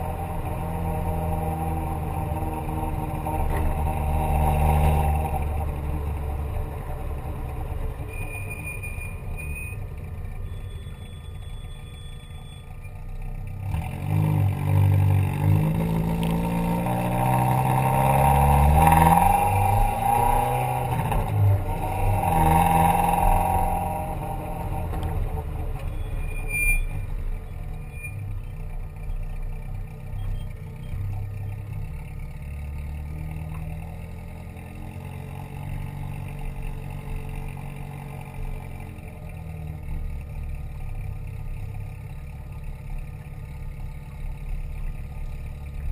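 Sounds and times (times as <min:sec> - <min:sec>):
car engine revving: 0:00.0 - 0:08.2, 0:13.6 - 0:26.4.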